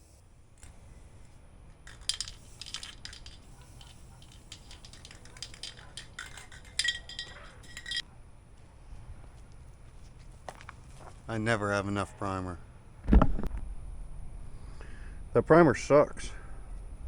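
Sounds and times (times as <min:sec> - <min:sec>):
aerosol can being shaken: 0:01.8 - 0:07.9.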